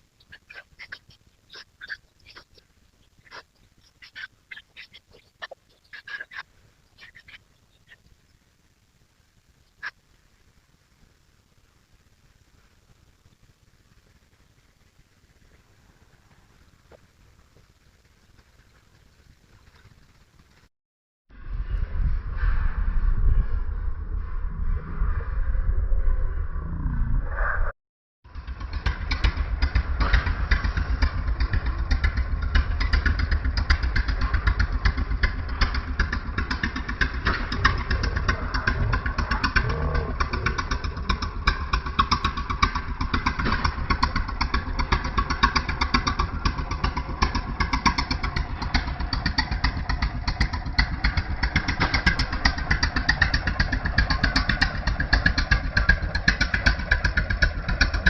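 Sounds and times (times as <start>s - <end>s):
tractor engine running: 12.1s - 20.7s, 28.3s - 58.0s.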